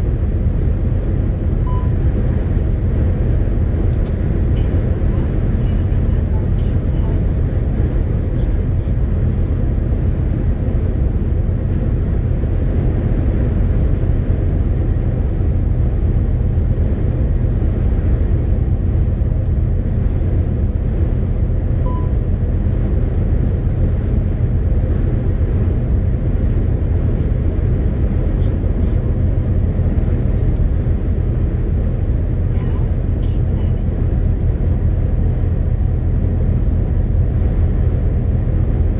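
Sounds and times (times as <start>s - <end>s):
road noise: 0.0s - 38.9s
truck diesel engine drone: 0.0s - 38.9s
short high beep: 21.9s - 22.1s.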